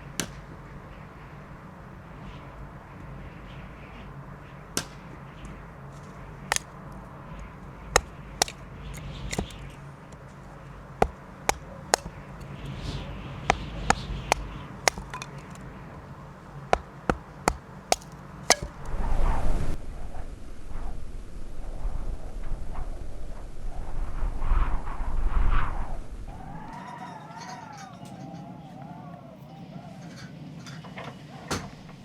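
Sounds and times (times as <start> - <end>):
sharp chopping strikes: 0.2 - 0.6, 4.8 - 5.1, 6.5 - 6.7, 8.0 - 10.2, 11.0 - 15.6, 16.7 - 19.0.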